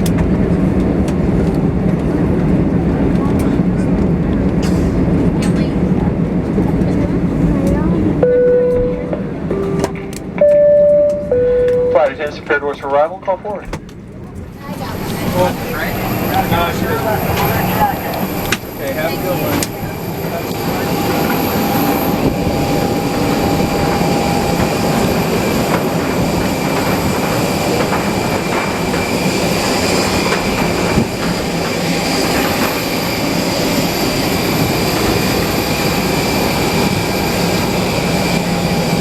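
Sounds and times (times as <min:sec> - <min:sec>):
aircraft engine whine: 0:00.0 - 0:39.0
low cabin rumble: 0:00.0 - 0:39.0.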